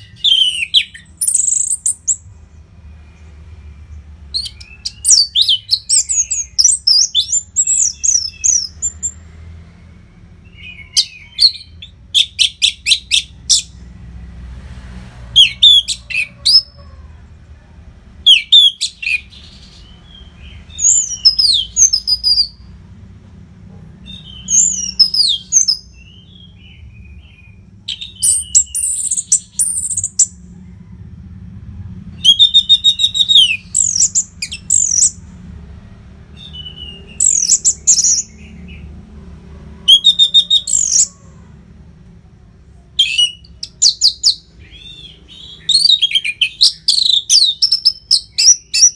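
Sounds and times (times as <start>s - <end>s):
thrush singing whistled phrases: 0.0s - 2.3s, 4.3s - 9.2s, 10.4s - 13.8s, 15.4s - 16.8s, 18.3s - 22.6s, 24.1s - 30.4s, 32.2s - 35.2s, 36.4s - 38.8s, 39.9s - 41.4s, 43.0s - 48.9s.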